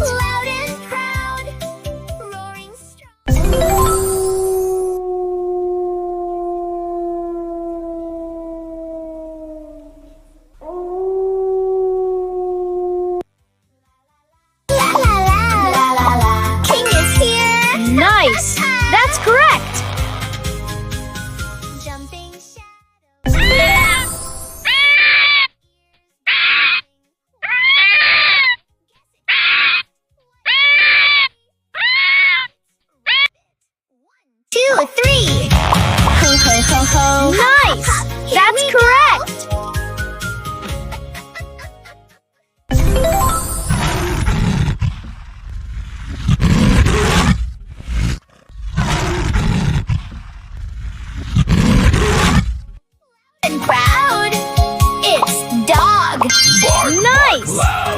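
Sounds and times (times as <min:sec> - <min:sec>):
animal roaring: 0:04.8 - 0:13.2, 0:43.8 - 0:52.6
high-pitched animal calls: 0:23.4 - 0:25.5, 0:26.3 - 0:28.6, 0:29.3 - 0:32.5, 0:33.1 - 0:33.3, 0:35.8 - 0:37.8, 0:56.2 - 0:57.9.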